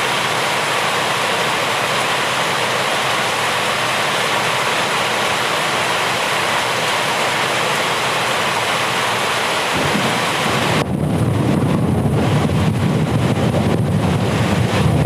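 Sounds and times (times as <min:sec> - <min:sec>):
heavy rain falling: 0:00.0 - 0:15.0
low rumble: 0:09.7 - 0:15.0.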